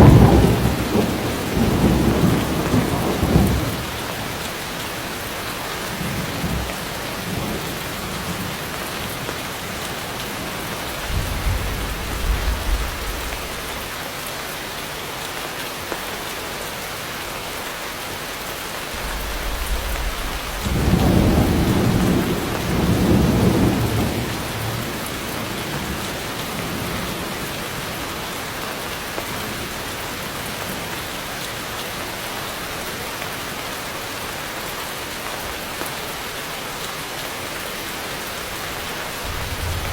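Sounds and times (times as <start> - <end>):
thunder rumbling: 0.0 - 4.2, 10.1 - 14.0, 18.9 - 27.1, 38.6 - 39.9
heavy rain falling: 0.0 - 39.9.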